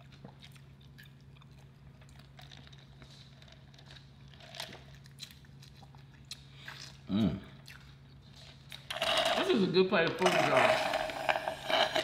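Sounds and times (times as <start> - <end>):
soft chewing with mouth clicks: 0.0 - 8.9.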